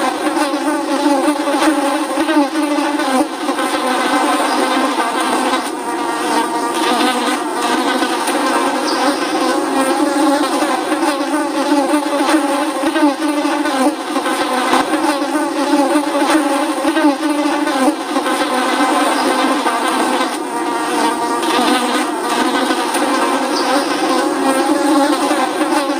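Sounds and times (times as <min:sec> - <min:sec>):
flies buzzing: 0:00.0 - 0:25.9.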